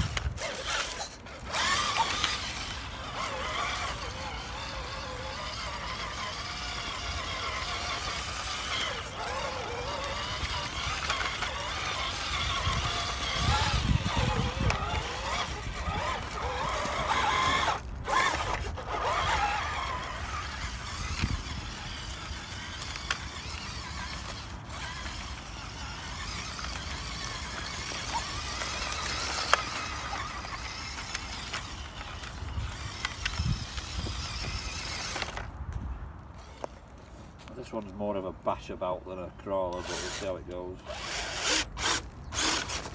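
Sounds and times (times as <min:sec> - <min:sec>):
toy car motor whining: 0:00.0 - 0:35.5, 0:36.3 - 0:37.4, 0:39.5 - 0:42.9.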